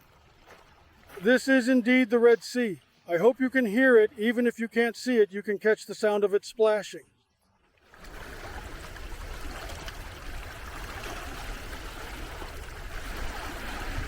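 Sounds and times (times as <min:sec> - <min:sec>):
waves splashing on shore: 0:07.9 - 0:14.0.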